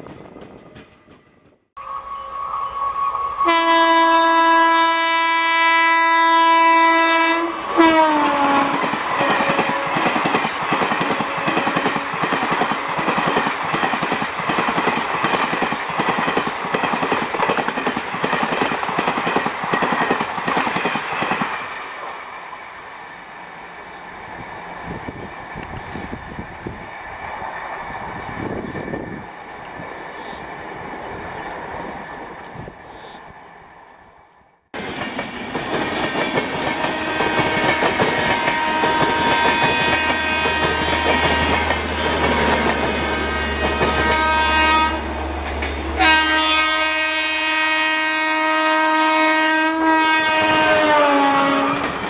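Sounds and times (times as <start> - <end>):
train wheels clickety-clack: 0.0 - 1.6, 8.2 - 21.8, 34.8 - 46.0, 50.9 - 52.0
distant train rumble: 0.0 - 52.0
locomotive horn blast: 1.8 - 10.1, 36.8 - 45.2, 46.0 - 52.0.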